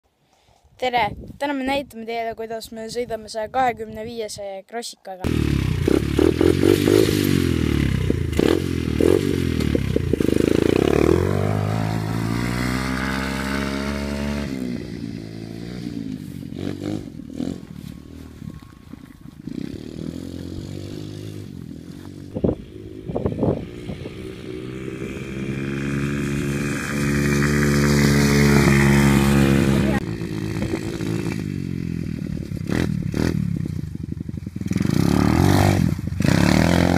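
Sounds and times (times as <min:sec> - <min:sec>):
dirt bike engine revving: 0:05.3 - 0:36.9.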